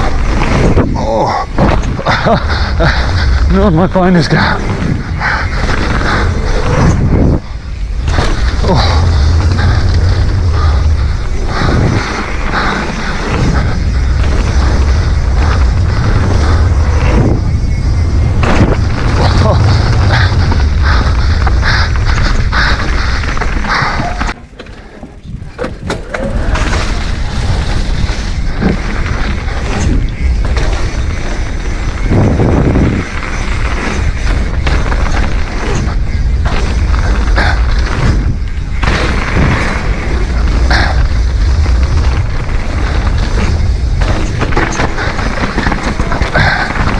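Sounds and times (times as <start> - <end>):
bike rattling over ground: 0.0 - 46.9
wind buffeting microphone: 0.0 - 46.9
tyre rumble on dirt trail: 4.4 - 46.9
bike knocking on rough ground: 21.9 - 28.8.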